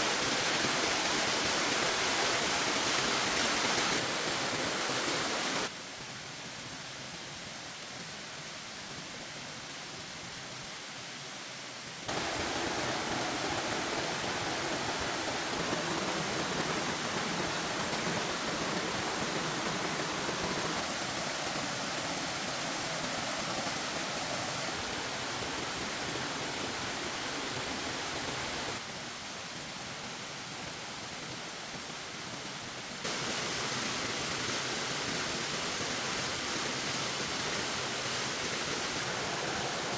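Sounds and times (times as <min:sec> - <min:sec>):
outdoor ambience rushing: 0:12.1 - 0:28.8, 0:37.2 - 0:39.9.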